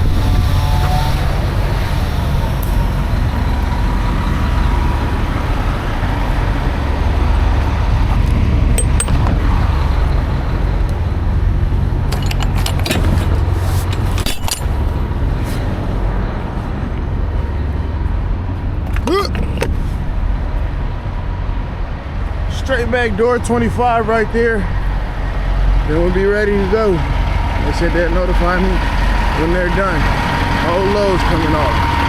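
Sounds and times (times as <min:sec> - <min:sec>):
diesel truck engine rumbling: 0:00.0 - 0:32.0
sharp clicks and knocks: 0:08.7 - 0:09.5.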